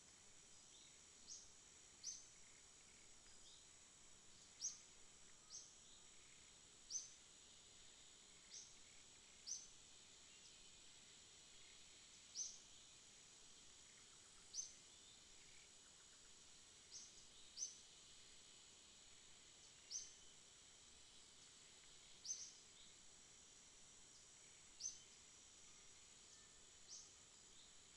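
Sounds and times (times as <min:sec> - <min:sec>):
high-pitched insect drone: 0:13.7 - 0:27.9.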